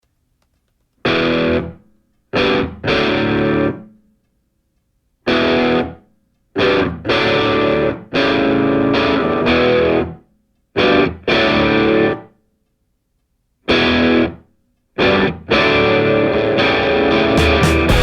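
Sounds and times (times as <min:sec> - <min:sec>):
distorted electric guitar power chords: 0:15.0 - 0:18.0.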